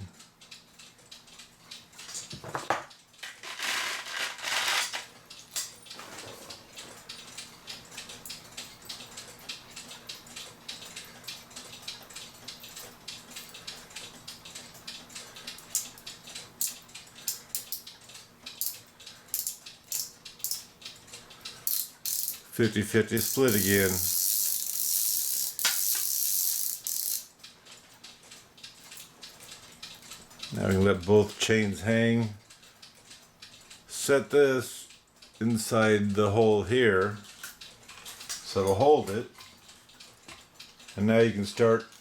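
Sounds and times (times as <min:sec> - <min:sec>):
clock chain ratcheting clicks: 0:00.4 - 0:06.0, 0:07.0 - 0:42.0.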